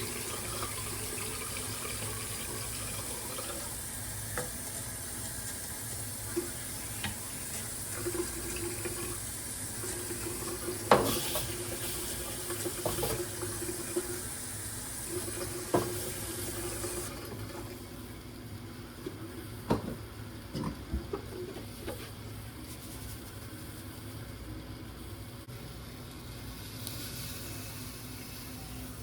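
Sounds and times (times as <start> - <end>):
tap running into sink: 10.4 - 11.6, 12.4 - 14.1, 15.3 - 17.5, 19.0 - 22.0.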